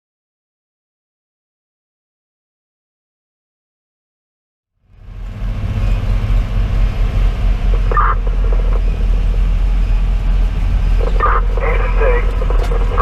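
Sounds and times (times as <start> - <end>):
diesel engine and road rumble: 4.8 - 13.0.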